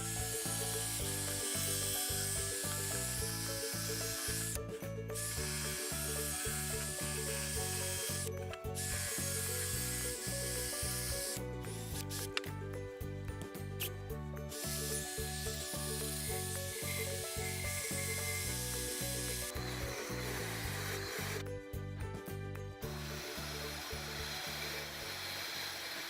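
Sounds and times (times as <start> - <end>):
background music with a beat: 10.8 - 14.6.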